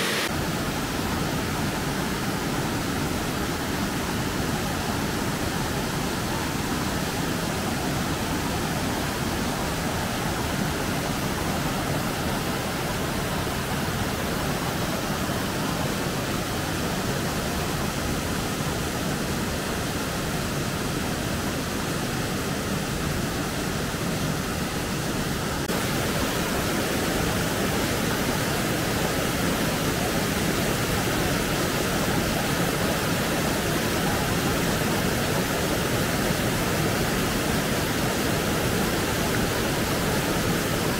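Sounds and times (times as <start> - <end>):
falling water rushing: 0.0 - 40.9.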